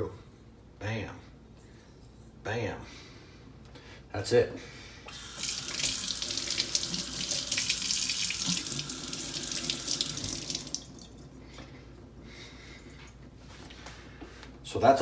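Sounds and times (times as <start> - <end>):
tap water running into sink: 5.1 - 11.8.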